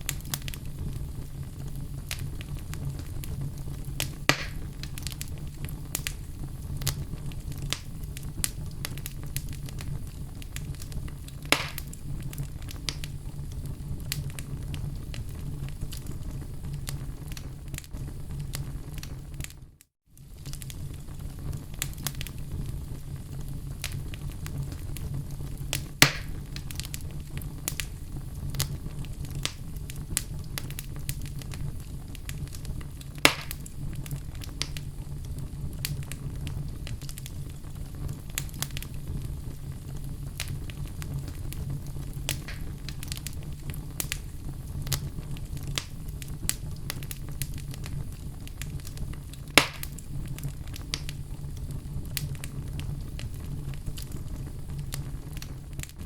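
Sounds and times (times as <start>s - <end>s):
burning wood pops: 0.0s - 19.6s, 20.2s - 56.0s
fire rumbling: 0.0s - 56.0s
small fire crackles: 0.0s - 56.0s.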